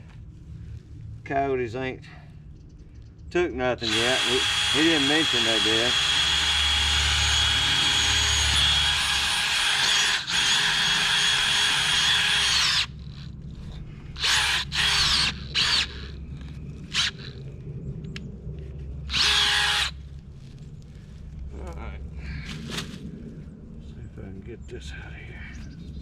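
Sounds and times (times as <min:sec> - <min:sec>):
power drill whining: 0:03.8 - 0:13.2, 0:14.2 - 0:16.2, 0:16.9 - 0:17.4, 0:19.1 - 0:20.0.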